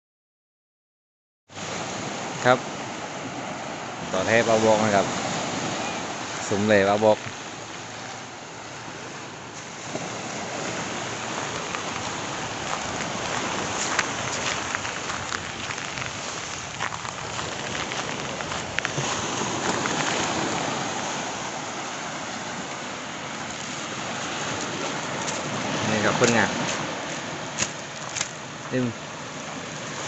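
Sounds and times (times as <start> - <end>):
water sloshing and surf hissing: 1.5 - 30.0
wind buffeting microphone: 9.7 - 21.9.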